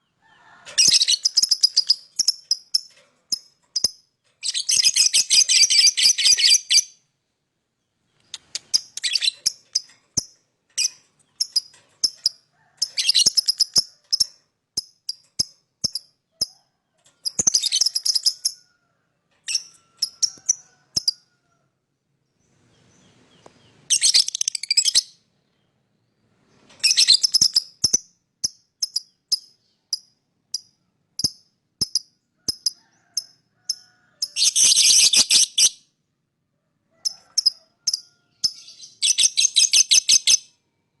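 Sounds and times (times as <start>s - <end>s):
shrill bird chatter: 0.8s - 2.9s, 3.8s - 7.0s, 8.1s - 14.4s, 17.2s - 18.6s, 32.6s - 35.8s, 37.3s - 40.4s
bird chirping: 0.8s - 7.1s, 7.7s - 16.5s, 17.1s - 18.6s, 22.2s - 36.0s, 37.2s - 41.0s.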